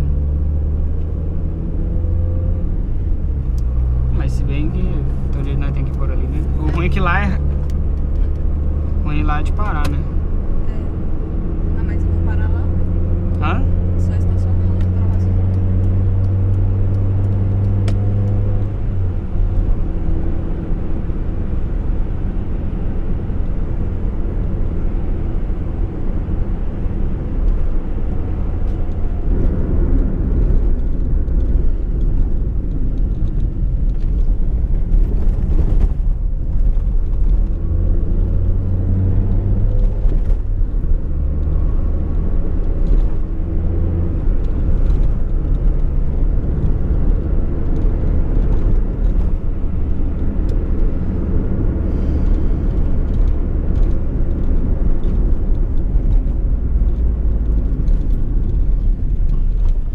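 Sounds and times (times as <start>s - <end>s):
car engine running: 0.0s - 59.9s
road rumble: 0.0s - 59.9s.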